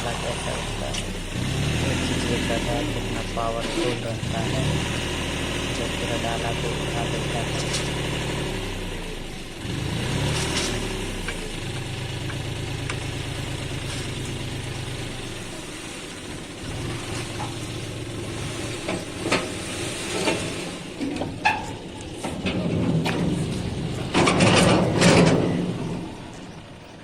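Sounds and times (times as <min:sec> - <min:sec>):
diesel tractor engine running: 0:00.0 - 0:27.0
soil and gravel sliding: 0:00.0 - 0:27.0
metal knocks and clanks: 0:18.4 - 0:26.5.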